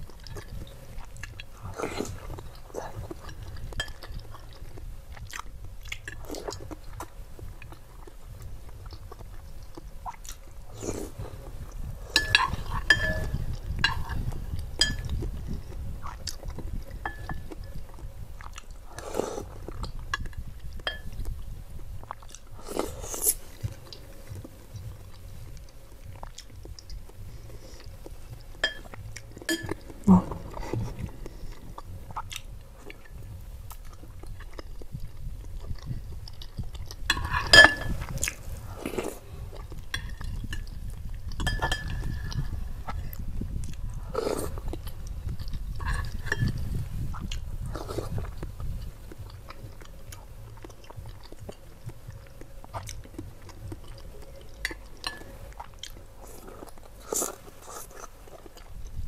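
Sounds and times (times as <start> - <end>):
chewing soft food: 0.0 - 59.0
metal spoon clinking glass bowl: 12.2 - 14.2, 20.9 - 21.1, 28.6 - 28.9, 29.5 - 29.8, 37.1 - 38.0, 41.4 - 42.2.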